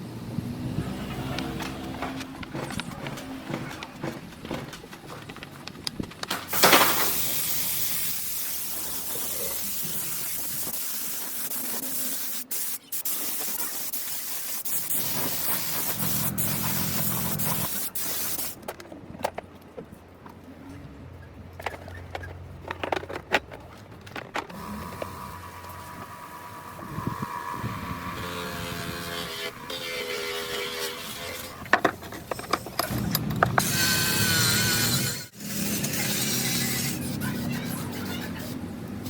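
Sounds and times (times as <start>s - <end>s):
spraying hiss: 6.6s - 18.6s.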